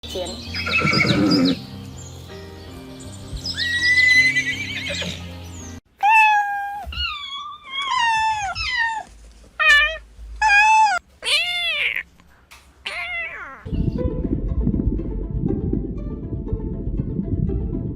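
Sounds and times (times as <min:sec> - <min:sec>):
background music: 0:00.0 - 0:05.8, 0:13.7 - 0:17.9
pitched animal calls: 0:06.0 - 0:12.1, 0:12.8 - 0:13.7.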